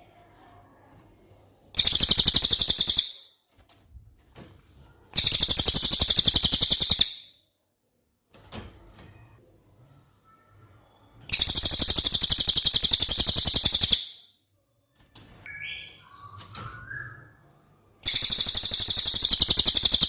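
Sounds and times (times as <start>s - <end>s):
faint bird chirps: 1.6s - 3.4s, 5.2s - 7.4s, 9.2s - 20.0s
songbird trilling: 1.8s - 3.3s, 5.2s - 7.3s, 11.3s - 14.2s, 18.0s - 20.0s.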